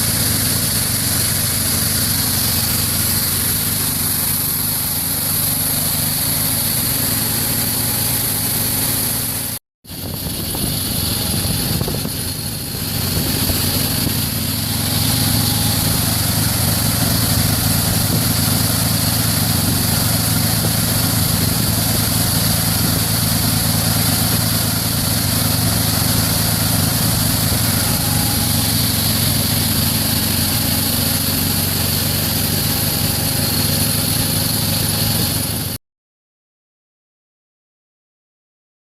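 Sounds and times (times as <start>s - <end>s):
engine droning: 0.0s - 35.8s.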